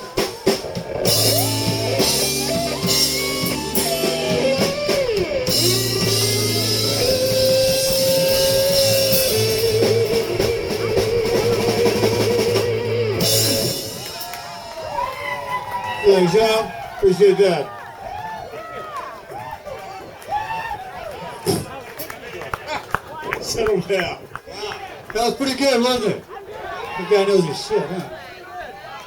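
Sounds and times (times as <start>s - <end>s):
lead guitar with bent notes: 0.0s - 14.7s
blues-rock band playing: 0.0s - 16.4s.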